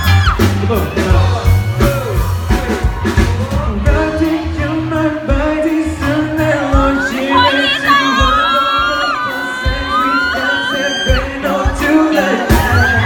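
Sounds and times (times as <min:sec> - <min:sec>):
live pop-rock band: 0:00.0 - 0:13.0
person singing: 0:00.0 - 0:13.0
steady drum beat: 0:00.0 - 0:13.0.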